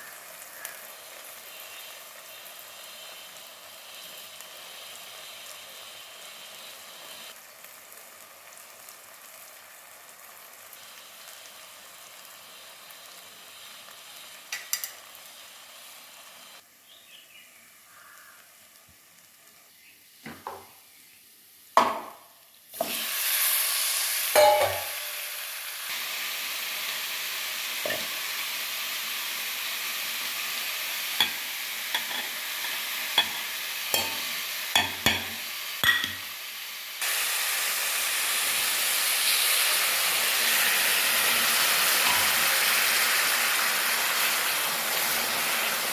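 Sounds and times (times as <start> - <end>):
food sizzling in a pan: 0.0 - 45.9
utensil knocking on pan: 21.8 - 22.3, 24.4 - 25.0, 34.8 - 36.2.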